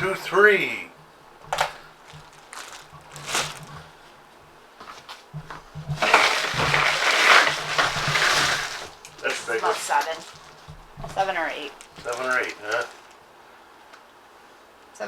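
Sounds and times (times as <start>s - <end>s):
ice and water crunching: 1.4s - 4.0s, 5.0s - 13.2s.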